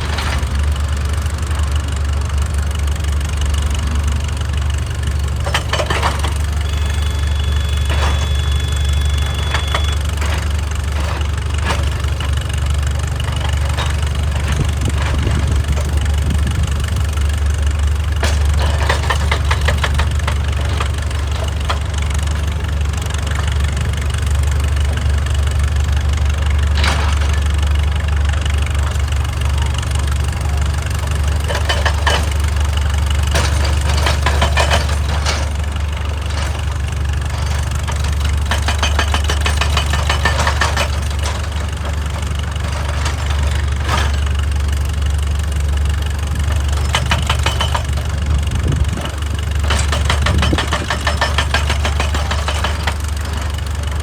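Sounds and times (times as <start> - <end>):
excavator diesel engine running: 0.0 - 54.0
clattering and scraping rock: 5.3 - 16.6, 46.8 - 53.6.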